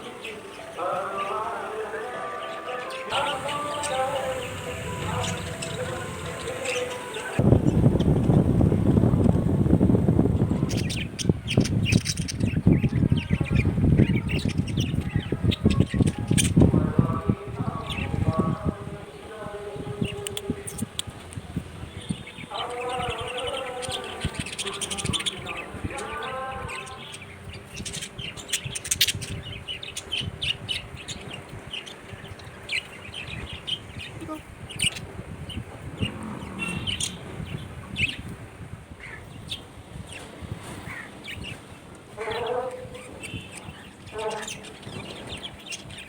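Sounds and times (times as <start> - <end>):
budgies chirping: 0.0 - 9.2, 10.4 - 18.7, 21.9 - 38.4, 39.0 - 46.0.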